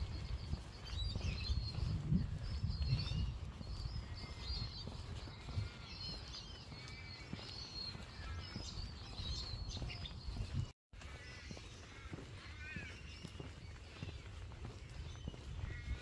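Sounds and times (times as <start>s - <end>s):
wind on microphone: 0.0s - 10.7s
footsteps on paved path: 0.0s - 16.0s
small birds chirping: 0.0s - 16.0s.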